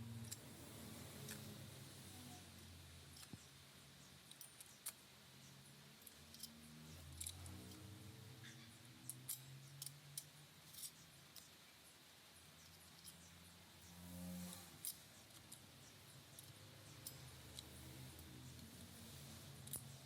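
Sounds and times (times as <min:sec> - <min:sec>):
low background hum: 0:00.0 - 0:20.0
small parts clicking and tapping: 0:00.0 - 0:20.0.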